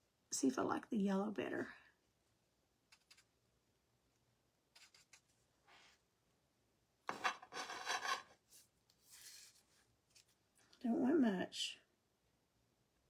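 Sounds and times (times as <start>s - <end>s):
painting supplies handling noises: 7.1s - 10.4s.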